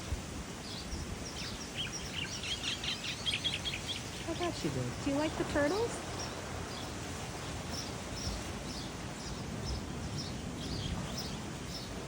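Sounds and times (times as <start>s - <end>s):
background hiss: 0.0s - 12.0s
small songbird chirping: 0.0s - 12.0s.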